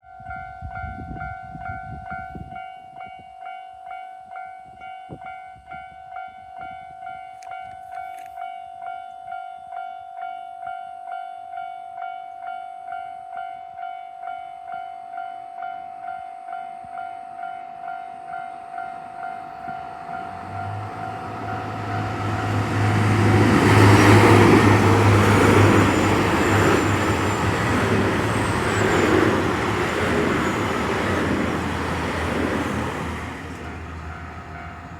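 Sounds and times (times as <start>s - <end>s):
diesel train engine: 19.0s - 34.9s
train wheel rumble: 19.2s - 34.9s.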